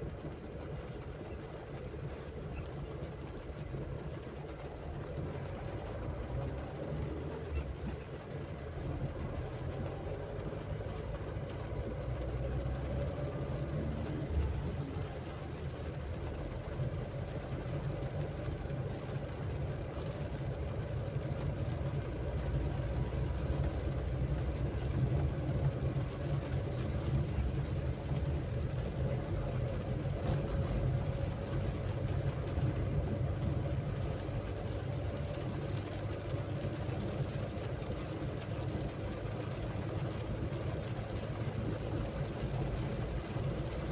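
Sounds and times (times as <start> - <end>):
vehicle engine rumble: 0.0 - 43.9.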